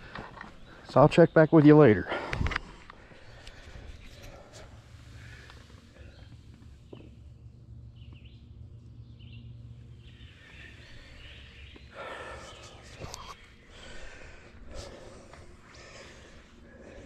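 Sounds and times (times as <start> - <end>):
heavy breathing: 10.4 - 17.0.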